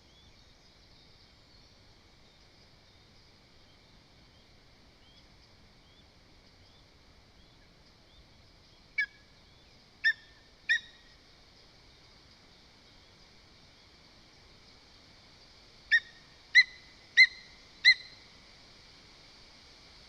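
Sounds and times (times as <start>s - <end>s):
eagle yelping calls: 15.9s - 18.2s.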